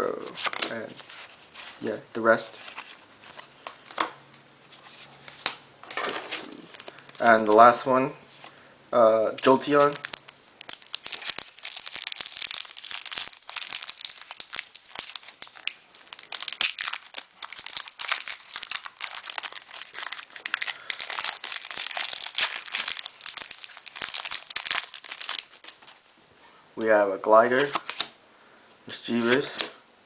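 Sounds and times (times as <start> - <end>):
foil wrapper crinkling: 9.7 - 26.0.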